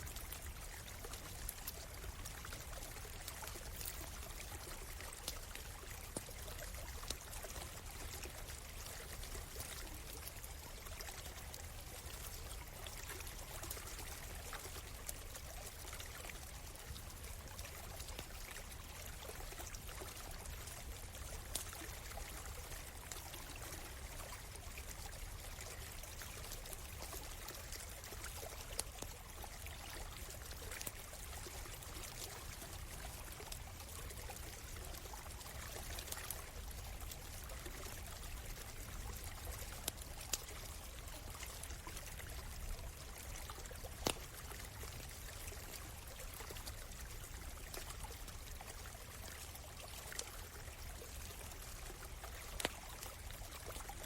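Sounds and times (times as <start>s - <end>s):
stream flowing: 0.0s - 54.0s
campfire crackling: 26.5s - 45.3s.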